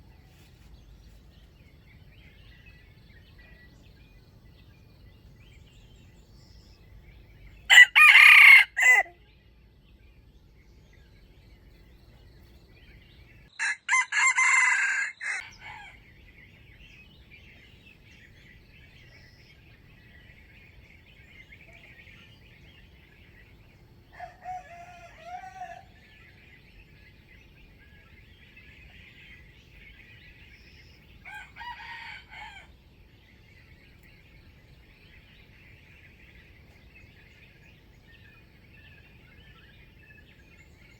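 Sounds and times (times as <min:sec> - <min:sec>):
rooster crowing: 0:07.7 - 0:09.2, 0:13.6 - 0:16.0, 0:24.1 - 0:26.2, 0:31.2 - 0:32.8.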